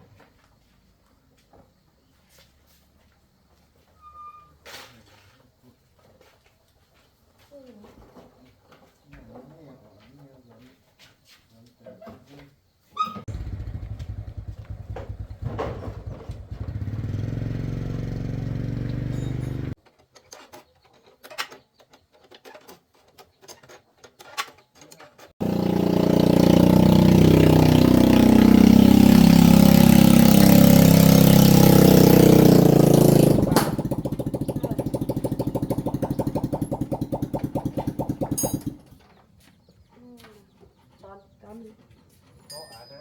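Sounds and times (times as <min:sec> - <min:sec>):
motorcycle engine running: 0:13.3 - 0:19.8, 0:25.4 - 0:39.0.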